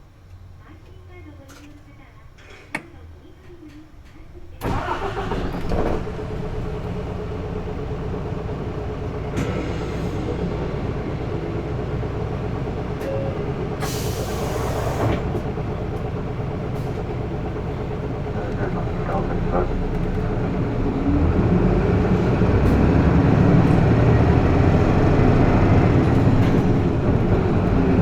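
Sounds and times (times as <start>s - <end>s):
bus diesel engine running: 4.4s - 28.0s
air hiss: 13.8s - 15.2s.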